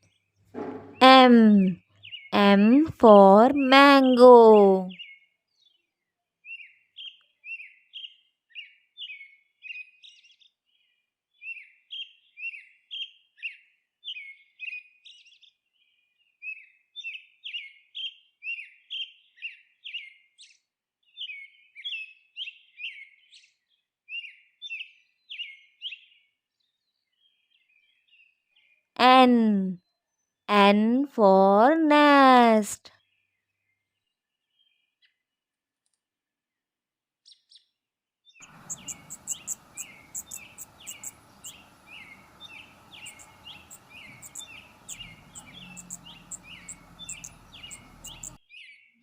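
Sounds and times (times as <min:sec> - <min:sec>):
small bird chirping: 0:38.4 - 0:48.8.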